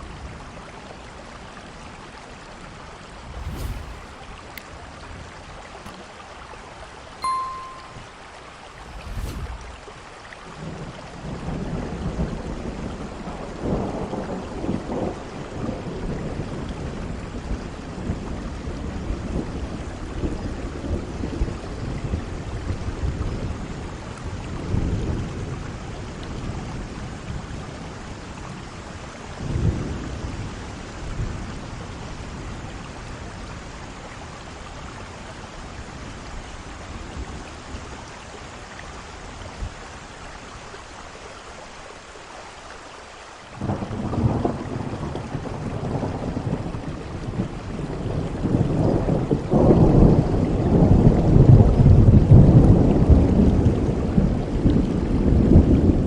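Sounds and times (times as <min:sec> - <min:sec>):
rain falling: 0:00.0 - 0:56.0
low rolling thunder: 0:03.2 - 0:05.3, 0:08.8 - 0:27.9, 0:43.6 - 0:56.0.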